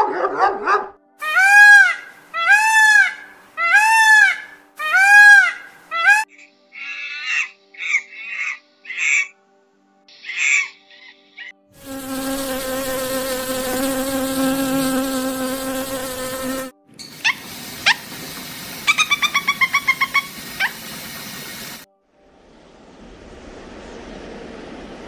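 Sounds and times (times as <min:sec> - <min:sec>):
monkey call: 0:01.2 - 0:06.2, 0:06.8 - 0:09.3, 0:10.2 - 0:11.5, 0:17.1 - 0:18.1, 0:18.8 - 0:21.0
bee buzzing: 0:11.8 - 0:18.9
lovebird chirping sharply: 0:18.9 - 0:20.7.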